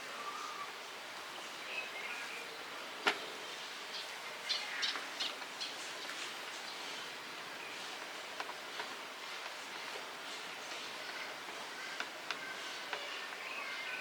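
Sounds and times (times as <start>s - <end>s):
faint bird chirps: 0.0s - 0.8s, 1.4s - 2.6s
outdoor background hiss: 0.0s - 14.0s.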